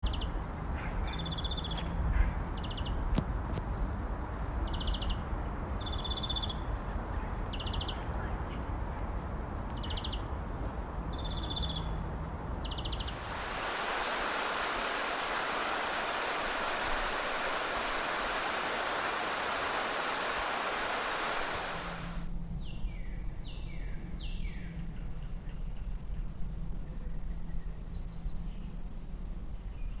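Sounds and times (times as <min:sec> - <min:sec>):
quick falling bird calls: 0:12.9 - 0:22.2
steady rushing hiss: 0:13.0 - 0:22.3.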